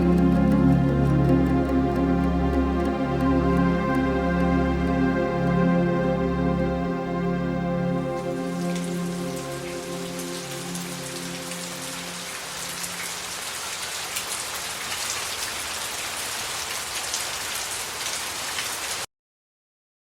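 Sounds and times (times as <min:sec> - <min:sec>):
raindrops pattering: 0:00.0 - 0:04.1, 0:08.4 - 0:19.0
sustained music notes: 0:00.0 - 0:13.7.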